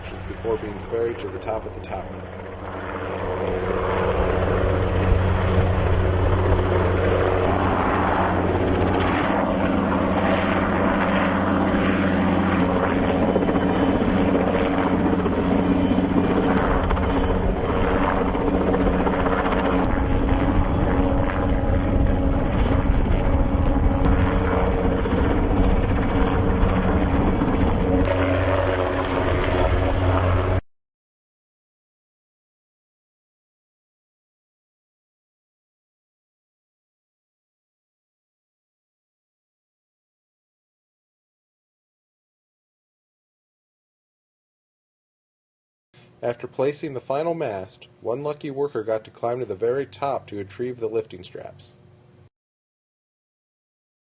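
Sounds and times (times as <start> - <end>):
helicopter rotor and turbine: 0.0 - 30.6.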